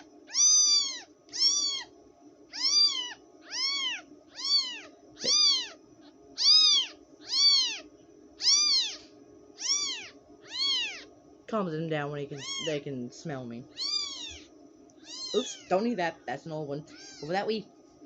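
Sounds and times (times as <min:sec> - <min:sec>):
kitten mewing: 0:00.0 - 0:01.9, 0:02.5 - 0:11.1, 0:12.3 - 0:12.8, 0:13.7 - 0:15.8, 0:16.9 - 0:17.4.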